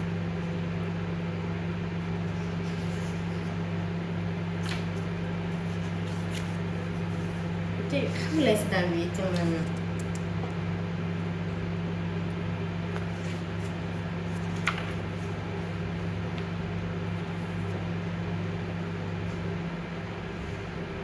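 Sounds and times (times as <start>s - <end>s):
microwave oven humming: 0.0s - 21.0s.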